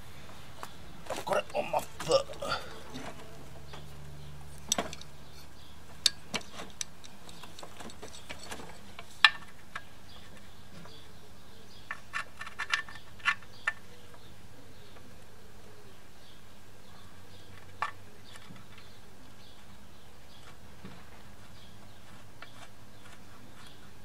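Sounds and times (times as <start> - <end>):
metal parts clicking and knocking: 4.6 - 5.1, 6.0 - 10.4, 11.9 - 13.8.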